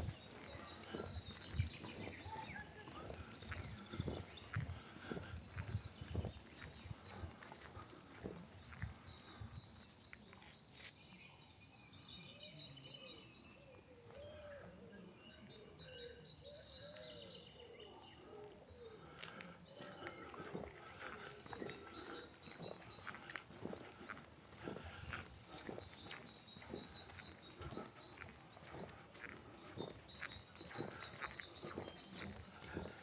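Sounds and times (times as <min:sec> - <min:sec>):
footsteps on path: 0:00.0 - 0:11.2, 0:18.4 - 0:33.0
songbirds chirping and trilling: 0:00.0 - 0:33.0.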